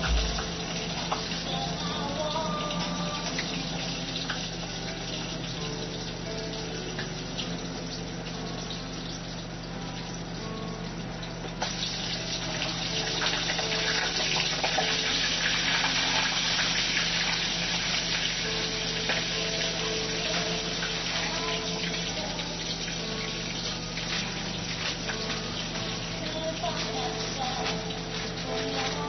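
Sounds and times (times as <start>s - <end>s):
low steady hum: 0.0s - 29.0s
tap water running into sink: 11.3s - 29.0s.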